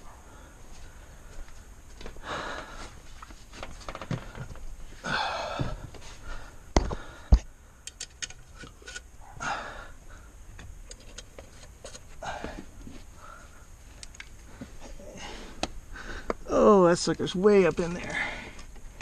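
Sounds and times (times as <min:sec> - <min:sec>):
man breathing heavily: 0:00.0 - 0:07.8, 0:09.2 - 0:10.5, 0:12.1 - 0:16.5, 0:18.0 - 0:18.9.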